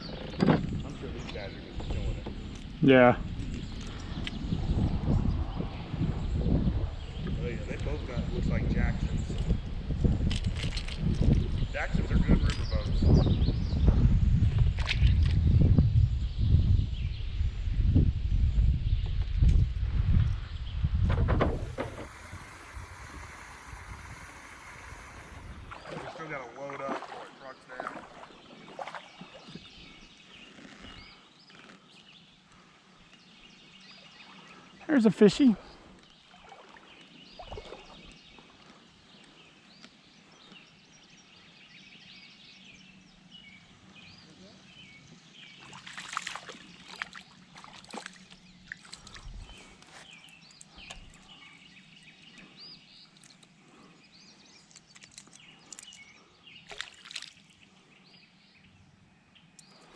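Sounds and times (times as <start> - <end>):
faint whistled birdsong: 0.0 - 59.9
water sloshing against kayak: 21.1 - 31.0, 35.7 - 39.3, 45.6 - 54.0.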